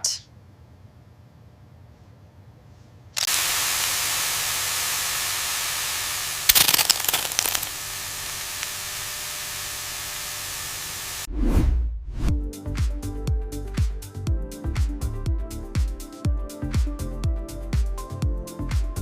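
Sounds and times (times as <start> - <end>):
crackling burst: 3.2 - 11.3
loud steady hiss: 3.2 - 11.3.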